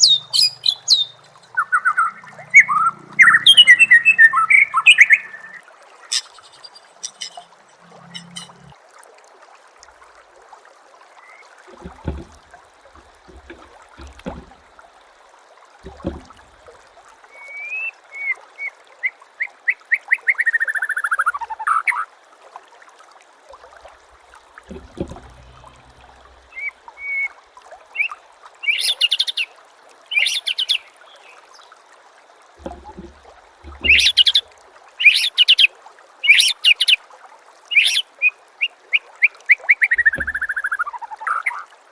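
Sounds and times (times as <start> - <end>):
bird sharp calls: 0.0 - 8.7, 33.8 - 34.4, 35.0 - 35.7
songbird chirping: 0.0 - 8.7, 32.6 - 35.7
low thumps: 11.7 - 14.7, 15.8 - 16.7, 24.0 - 26.6, 32.6 - 34.4.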